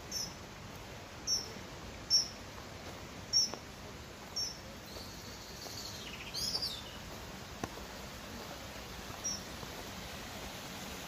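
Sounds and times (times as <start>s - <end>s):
small bird chirping: 0.0s - 0.4s, 1.2s - 2.4s, 3.3s - 3.6s, 4.3s - 7.0s, 9.2s - 9.5s.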